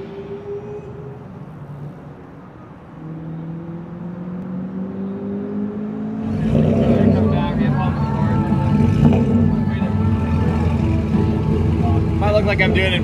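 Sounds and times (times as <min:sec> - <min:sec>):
car engine revving up: 0:02.9 - 0:13.0.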